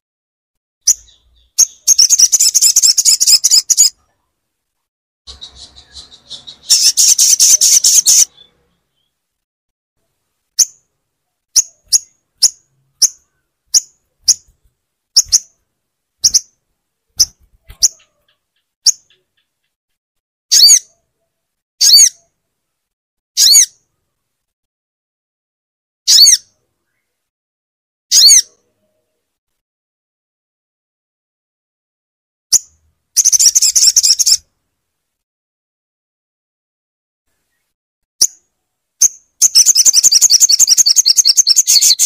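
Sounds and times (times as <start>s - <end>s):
bird calling: 5.3s - 9.1s.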